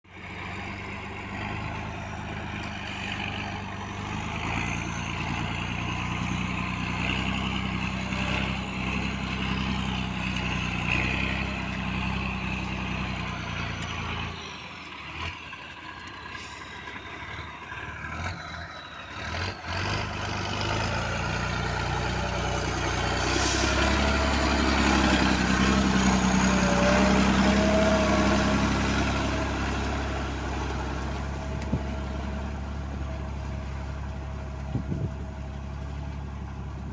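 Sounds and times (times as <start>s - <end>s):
tractor diesel engine under load: 0.0s - 36.9s.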